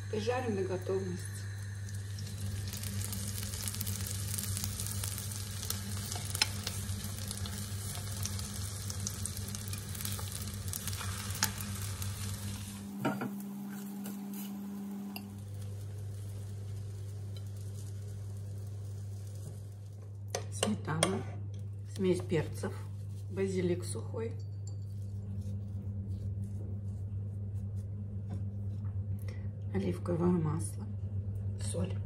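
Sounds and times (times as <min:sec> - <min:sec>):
steady low hum: 0:00.0 - 0:32.0
batter sizzling in oil: 0:00.1 - 0:20.3.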